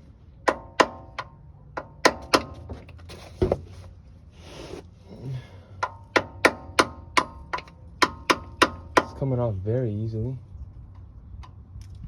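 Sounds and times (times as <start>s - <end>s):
hammer striking a chisel: 0.4s - 2.7s, 5.8s - 9.2s.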